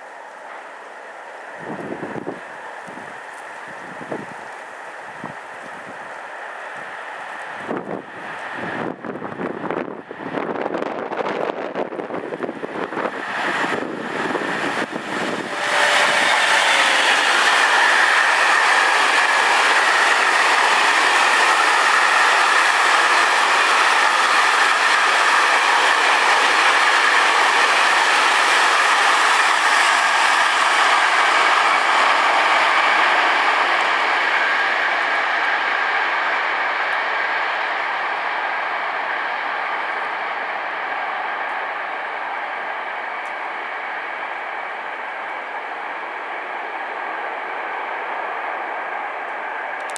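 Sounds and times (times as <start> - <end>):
freight train wheels on rails: 0.0 - 49.9
wind buffeting microphone: 1.6 - 4.5, 7.6 - 37.9.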